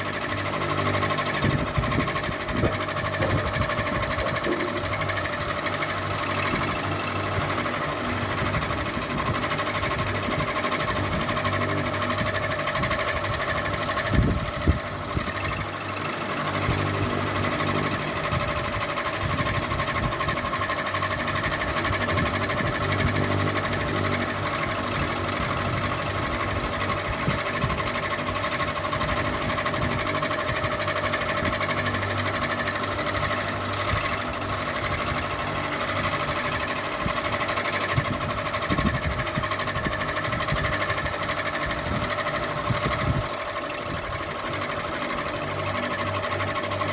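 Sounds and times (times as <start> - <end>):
ceiling fan running: 0.0 - 46.9.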